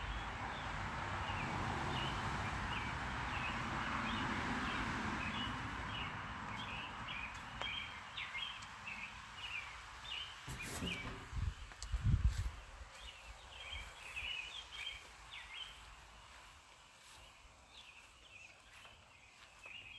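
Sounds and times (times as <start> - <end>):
birds chirping: 1.3 - 19.9
low thump: 10.5 - 11.7.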